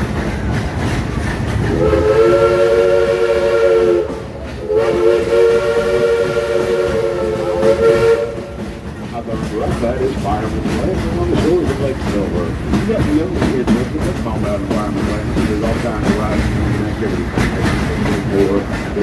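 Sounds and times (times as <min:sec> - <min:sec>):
rumble of moving train: 0:00.0 - 0:19.0
steam locomotive whistle: 0:01.6 - 0:08.8.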